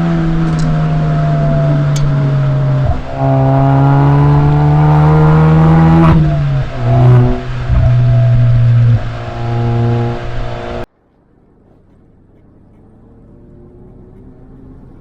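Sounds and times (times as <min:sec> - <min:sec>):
car exhaust note accelerating: 0:00.0 - 0:10.9.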